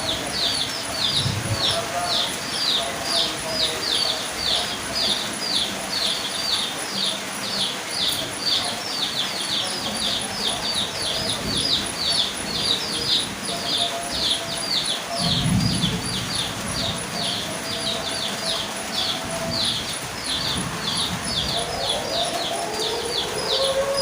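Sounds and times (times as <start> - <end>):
rain hiss: 0.0 - 24.0
siren rising: 21.2 - 24.0.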